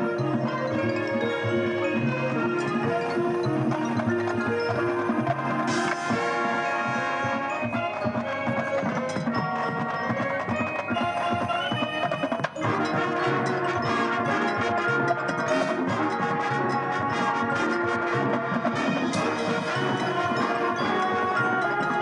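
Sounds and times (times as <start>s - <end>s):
chimes and glockenspiel: 0.0s - 22.0s
marching band playing: 0.0s - 22.0s.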